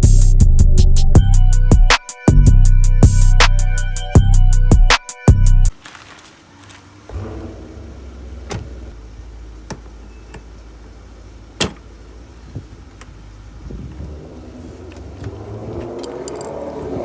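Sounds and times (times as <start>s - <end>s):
car engine low hum: 5.7s - 17.0s.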